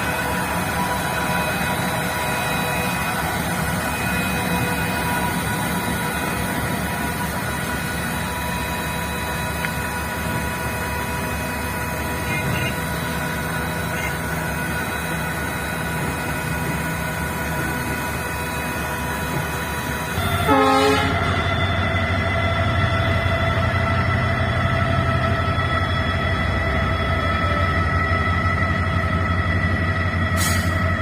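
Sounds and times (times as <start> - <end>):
held tone: 0.0 - 10.2
heavy vehicle rumbling: 0.0 - 21.4, 22.2 - 31.0.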